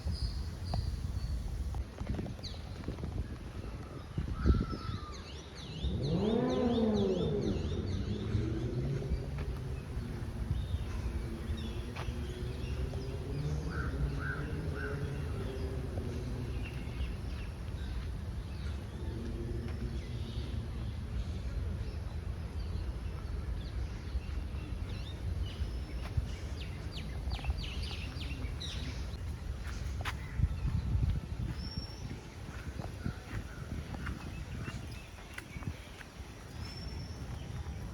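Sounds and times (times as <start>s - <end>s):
birds chirping: 0.0s - 1.8s, 4.4s - 37.9s
low rumble: 7.0s - 22.5s.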